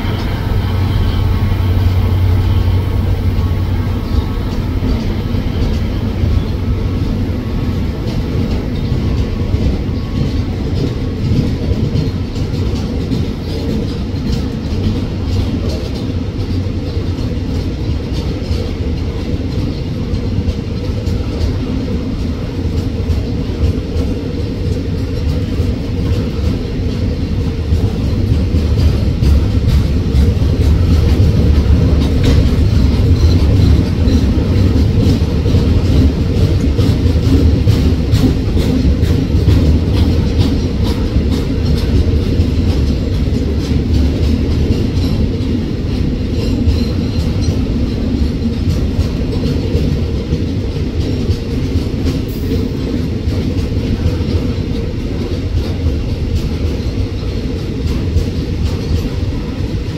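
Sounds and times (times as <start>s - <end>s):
train wheels rumbling and clicking: 0.0s - 59.9s.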